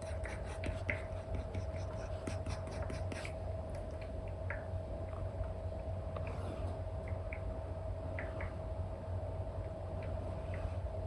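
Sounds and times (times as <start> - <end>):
stylus tapping and scratching on screen: 0.0 - 4.7
steady low hum: 0.0 - 11.0.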